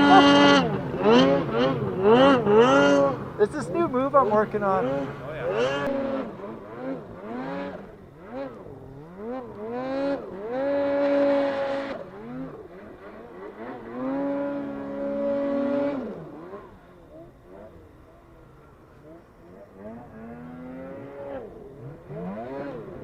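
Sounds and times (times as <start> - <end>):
snowmobile engine revving: 0.0 - 23.0.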